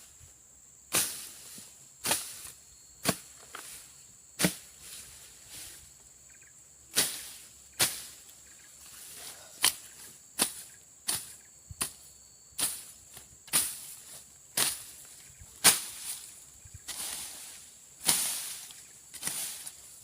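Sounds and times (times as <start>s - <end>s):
insects chirring: 0.0s - 20.0s
machete slashing through brush: 0.9s - 1.4s, 6.9s - 8.1s, 13.5s - 14.0s, 14.6s - 15.0s, 15.6s - 16.3s, 16.9s - 19.8s.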